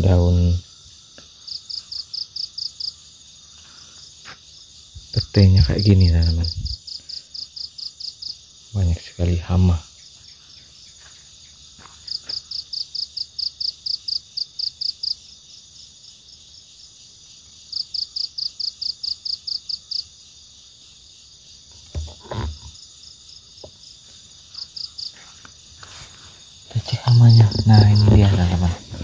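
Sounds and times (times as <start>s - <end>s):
insects high-pitched drone: 0.0s - 29.0s
loud rapid insect chirps: 0.0s - 29.0s
soft knocks: 21.8s - 22.7s.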